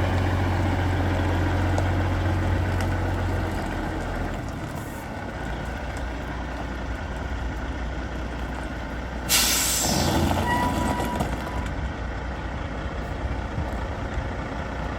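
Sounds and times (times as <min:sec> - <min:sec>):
diesel engine idling: 0:00.0 - 0:14.9
air brake hiss: 0:09.3 - 0:10.6.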